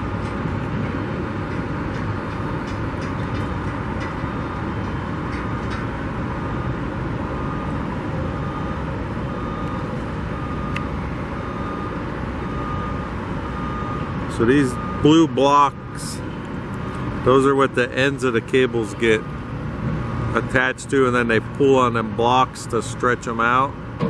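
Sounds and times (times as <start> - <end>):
city street traffic rumble: 0.0 - 24.0.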